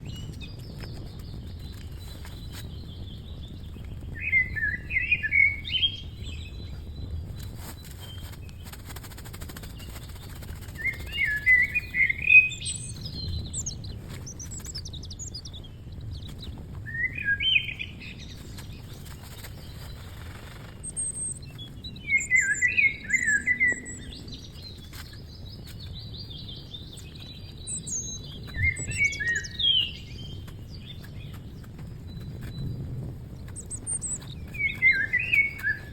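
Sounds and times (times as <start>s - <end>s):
songbird warbling: 10.8s - 13.8s, 16.9s - 18.3s, 20.9s - 25.0s, 27.8s - 30.4s, 33.6s - 35.9s.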